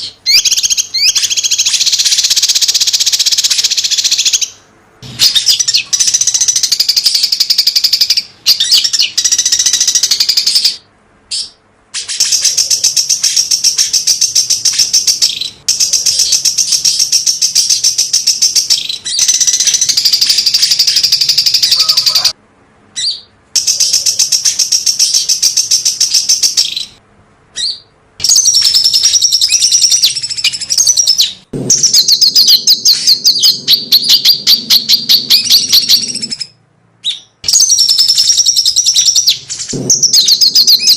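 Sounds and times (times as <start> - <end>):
songbird singing rapid runs: 27.6 - 40.9.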